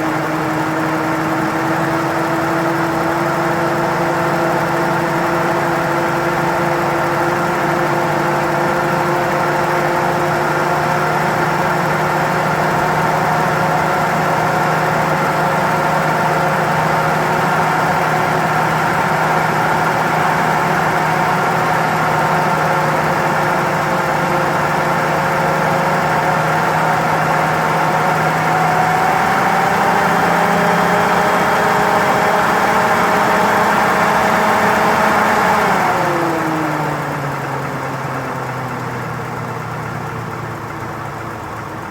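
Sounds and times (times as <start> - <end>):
car engine fast idling: 0.0 - 41.9.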